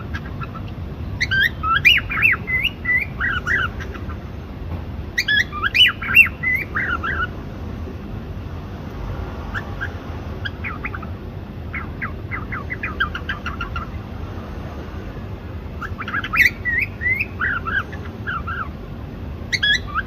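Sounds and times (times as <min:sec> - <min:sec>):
cockatiel whistled chirps: 0:01.2 - 0:04.1, 0:05.2 - 0:07.3, 0:15.8 - 0:18.7, 0:19.5 - 0:20.0.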